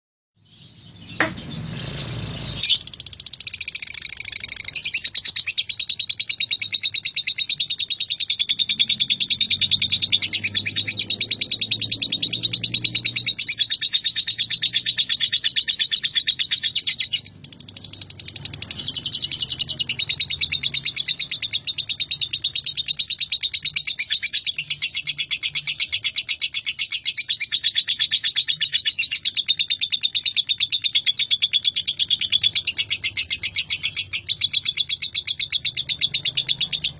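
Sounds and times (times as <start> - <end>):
bird high-pitched chattering song: 0.4 - 36.9
sharp knocks: 1.2 - 1.5.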